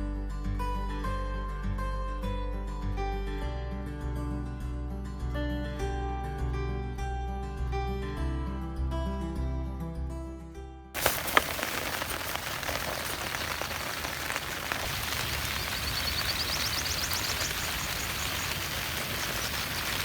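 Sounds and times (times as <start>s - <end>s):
steady rain falling: 11.0s - 20.0s
high chirping call: 13.2s - 20.0s.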